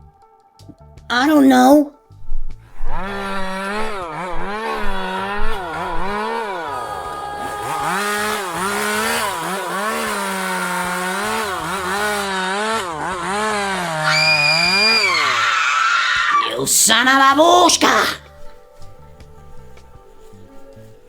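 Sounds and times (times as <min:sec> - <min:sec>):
chainsaw engine revving: 0:02.7 - 0:16.5.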